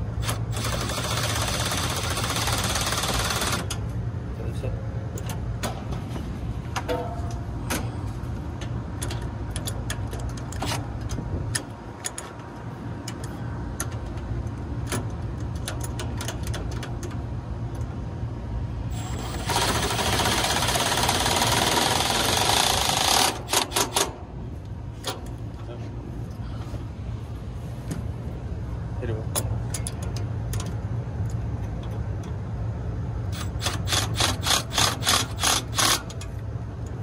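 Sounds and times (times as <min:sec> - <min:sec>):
power driver running: 0:00.2 - 0:03.8, 0:18.9 - 0:24.1.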